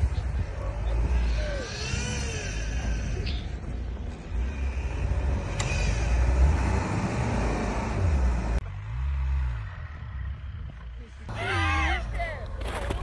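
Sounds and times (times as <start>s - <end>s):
engine low rumble: 0.0s - 13.0s.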